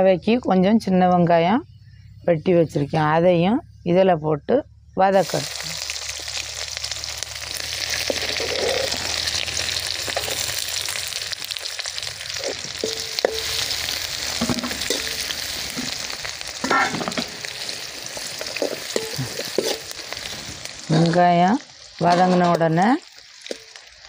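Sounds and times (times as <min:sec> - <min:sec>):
shallots sizzling in hot oil: 0:05.1 - 0:24.0
steel spoon scraping a pan: 0:08.1 - 0:09.2, 0:12.3 - 0:16.0, 0:16.6 - 0:20.6.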